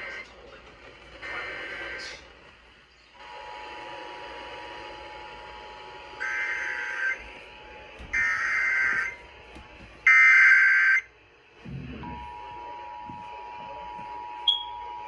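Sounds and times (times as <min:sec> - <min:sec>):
two-tone attention signal: 0:14.4 - 0:14.8
shrill digital data tones: 0:14.4 - 0:14.9.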